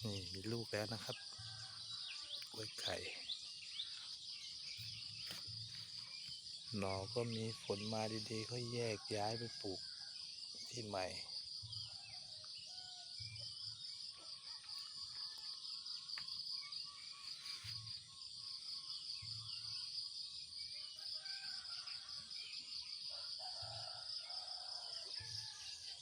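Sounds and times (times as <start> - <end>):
insect chorus shrilling: 0.0 - 12.1.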